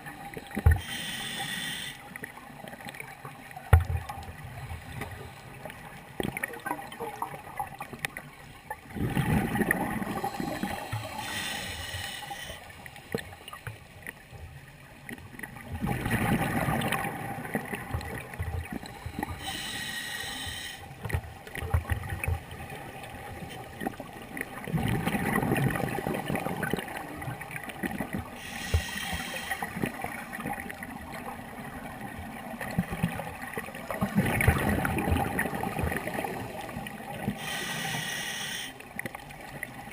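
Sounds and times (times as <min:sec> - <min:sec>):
regulator inhalation hiss: 0:00.8 - 0:02.0, 0:10.2 - 0:12.8, 0:19.2 - 0:20.9, 0:28.4 - 0:29.8, 0:37.4 - 0:38.8
gurgling rush of bubbles: 0:08.7 - 0:12.5, 0:15.4 - 0:19.3, 0:21.6 - 0:28.5, 0:29.1 - 0:37.6.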